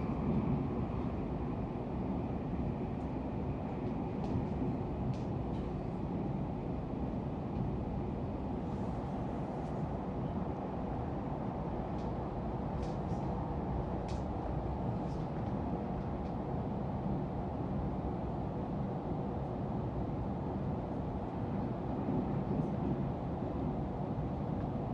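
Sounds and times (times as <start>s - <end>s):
train rumbling at speed: 0.0s - 24.9s.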